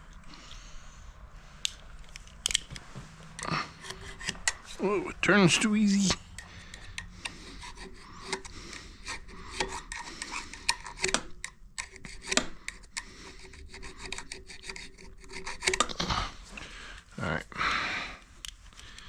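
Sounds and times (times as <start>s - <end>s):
metal scraping: 3.3s - 11.2s.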